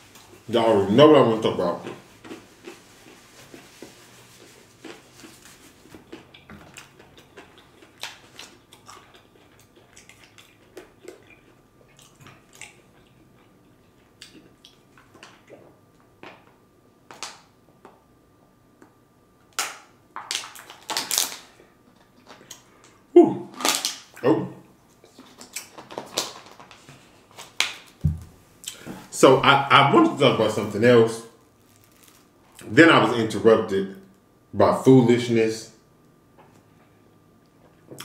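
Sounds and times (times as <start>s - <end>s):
person chewing: 1.7s - 16.4s, 28.6s - 28.9s.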